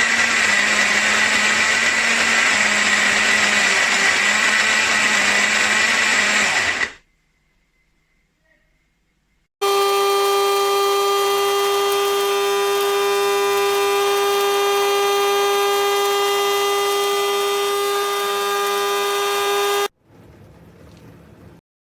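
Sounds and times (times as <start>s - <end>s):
coffee grinder motor whine: 0.0s - 7.0s, 9.6s - 20.0s.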